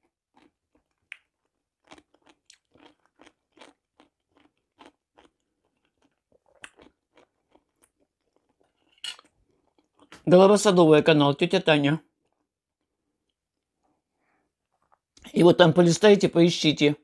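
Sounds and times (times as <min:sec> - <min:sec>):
chewing crisp pickles: 0:00.0 - 0:10.2.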